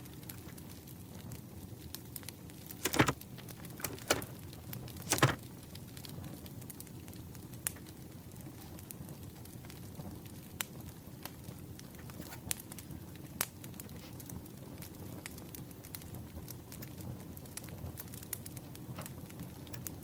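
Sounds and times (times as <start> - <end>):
campfire crackling: 2.5 - 20.0
paper handling noises: 2.8 - 5.5.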